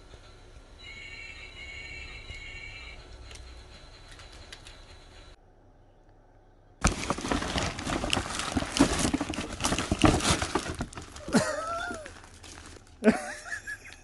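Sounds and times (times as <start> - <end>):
paper tearing and crinkling: 6.8 - 12.9.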